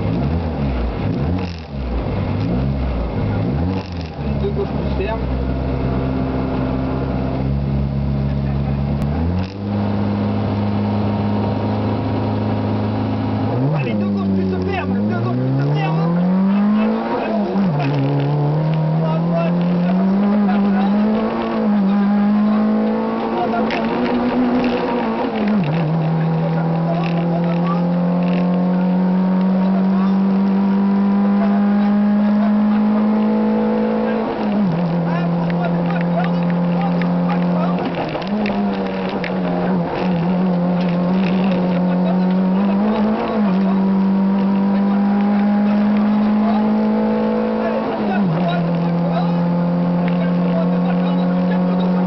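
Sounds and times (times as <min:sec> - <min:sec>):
car engine running: 0:00.0 - 0:52.0
sharp click: 0:01.1 - 0:01.8, 0:09.4 - 0:09.7.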